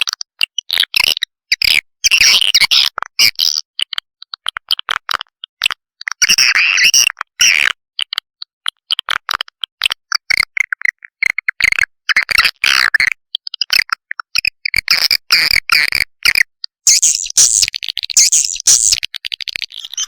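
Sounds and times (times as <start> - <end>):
swiftlet chirping twitters: 16.9 - 19.0, 19.6 - 20.0.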